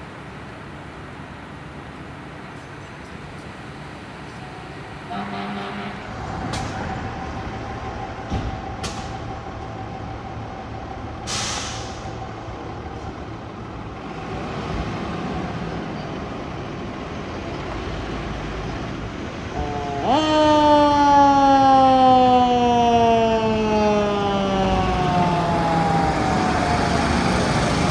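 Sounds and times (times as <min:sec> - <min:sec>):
air brakes hissing: 0:11.2 - 0:12.2.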